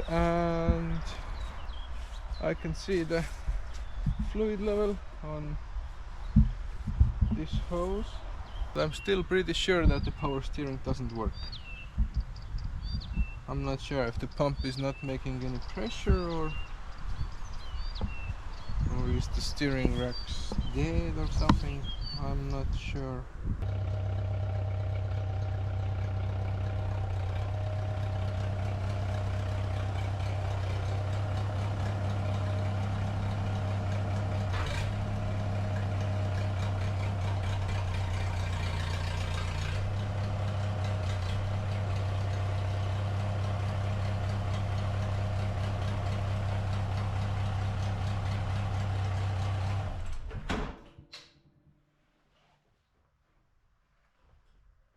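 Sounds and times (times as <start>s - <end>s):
small engine idling: 23.6s - 50.2s.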